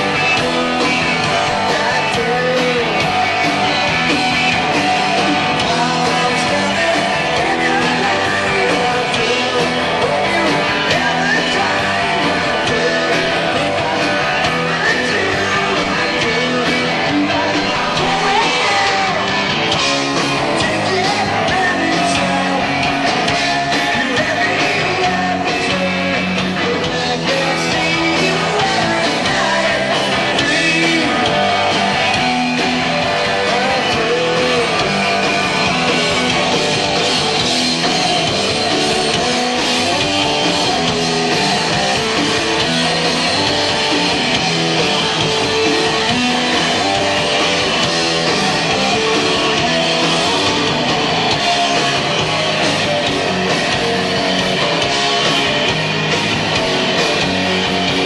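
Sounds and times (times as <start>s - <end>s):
shouted sung vocals: 0.0s - 19.7s, 20.3s - 36.9s
bass guitar: 0.0s - 58.0s
distorted electric guitar: 0.0s - 58.0s
drums: 0.0s - 58.0s.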